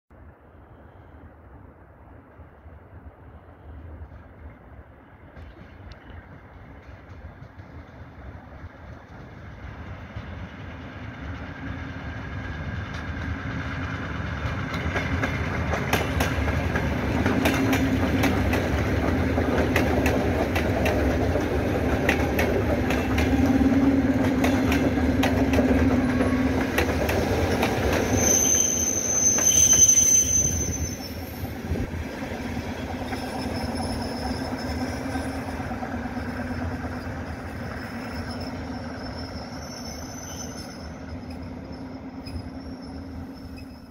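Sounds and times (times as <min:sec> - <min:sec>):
train rumble: 0:00.2 - 0:43.9
wheels clicking over rail joints: 0:12.8 - 0:28.2
high squeal: 0:27.3 - 0:31.6, 0:33.0 - 0:43.9.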